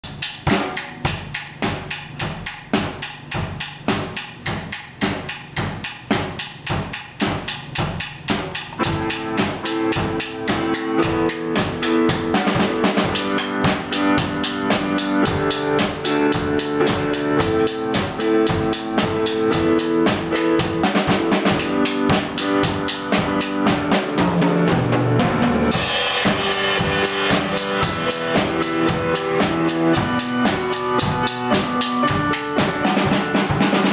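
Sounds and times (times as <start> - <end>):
drum kit beat: 0.0 - 33.9
sustained pitched instrument notes: 24.0 - 33.9.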